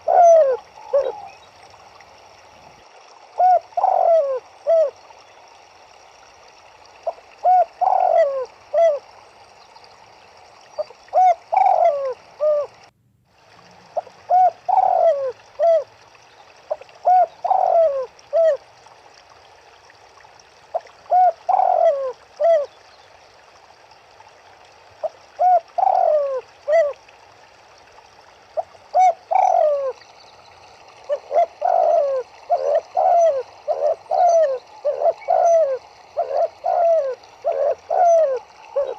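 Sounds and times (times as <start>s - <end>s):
doves cooing: 0.0s - 1.6s, 3.3s - 5.0s, 7.0s - 9.2s, 10.8s - 12.9s, 13.8s - 16.0s, 16.6s - 18.7s, 20.7s - 22.7s, 25.0s - 27.0s, 28.6s - 30.1s, 30.8s - 38.9s
running water hiss: 0.0s - 38.9s.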